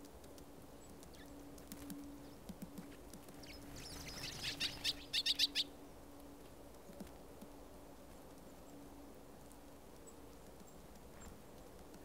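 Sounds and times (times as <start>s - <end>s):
small bird chirping: 3.3s - 5.7s.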